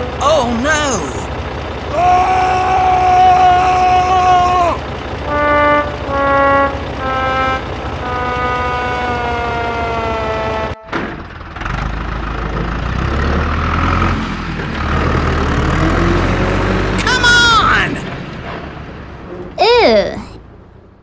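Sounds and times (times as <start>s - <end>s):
vehicle horn tooting: 0.0s - 0.8s, 4.1s - 11.3s
low engine rumble: 0.0s - 19.6s.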